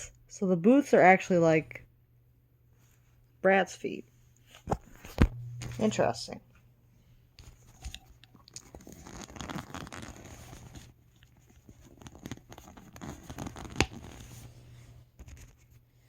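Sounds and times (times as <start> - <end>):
plastic doll rubbing and rustling: 7.4 - 15.8.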